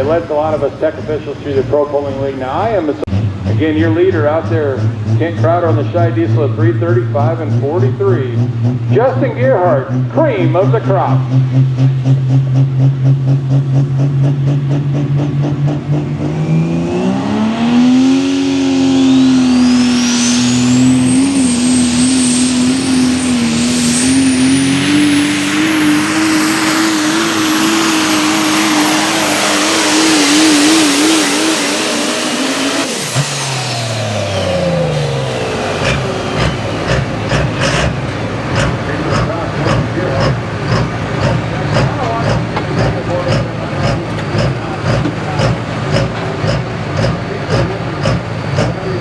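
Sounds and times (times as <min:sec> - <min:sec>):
diesel truck engine revving: 0:00.0 - 0:49.0
turbo whistle: 0:19.3 - 0:26.0.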